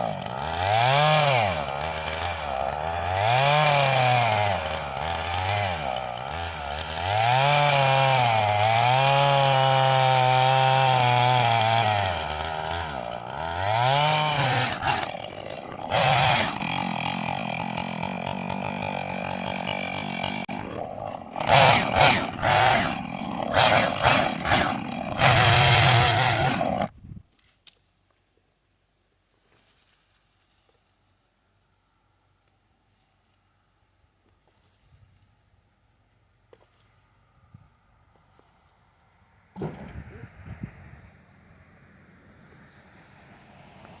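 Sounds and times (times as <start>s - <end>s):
chainsaw cutting: 0.0s - 26.9s
chainsaw revving: 0.0s - 26.9s.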